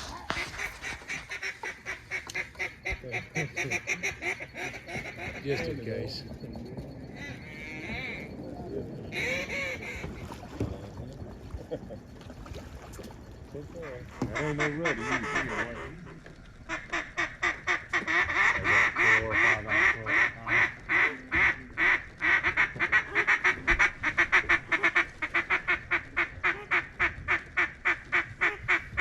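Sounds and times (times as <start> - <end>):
duck call quacks: 0.0 - 5.4, 9.1 - 10.0, 14.3 - 16.1, 16.7 - 29.0.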